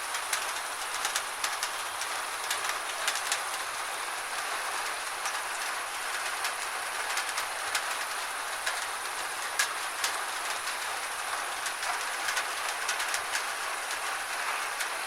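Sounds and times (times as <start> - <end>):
gentle rain hiss: 0.0 - 15.0
raindrops ticking: 0.0 - 15.0.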